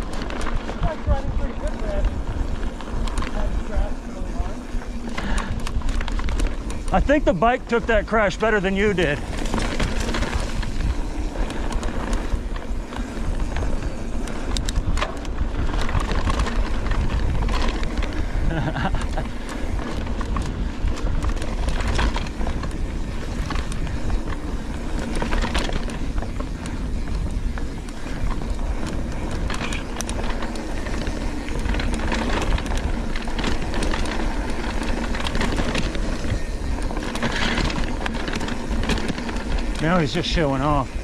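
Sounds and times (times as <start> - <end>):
bike rattling and clicking: 0.0 - 41.0
rushing noise of riding: 0.0 - 41.0.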